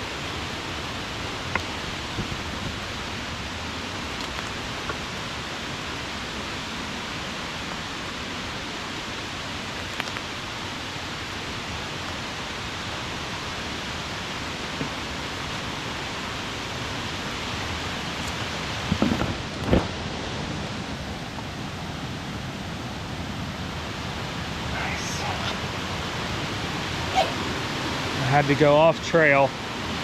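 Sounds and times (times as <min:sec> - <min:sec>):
waterfall rushing: 0:19.9 - 0:30.0.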